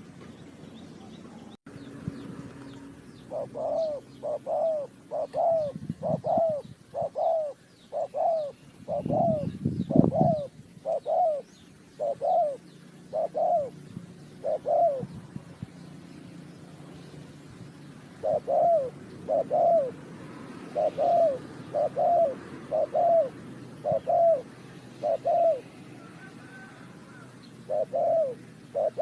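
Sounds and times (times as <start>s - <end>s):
dove cooing: 3.2s - 15.3s, 18.0s - 29.0s.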